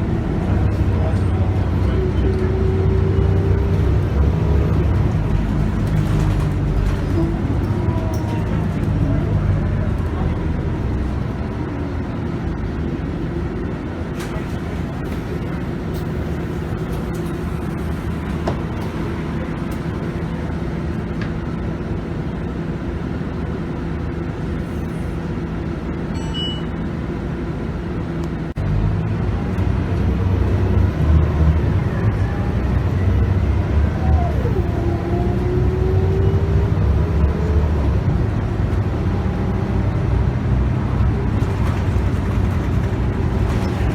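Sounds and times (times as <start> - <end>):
bus diesel engine running: 0.0 - 43.9.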